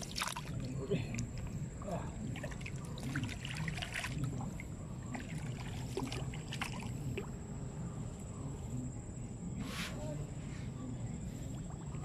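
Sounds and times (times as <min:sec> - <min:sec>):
mud squelching and water sloshing: 0:00.0 - 0:07.3.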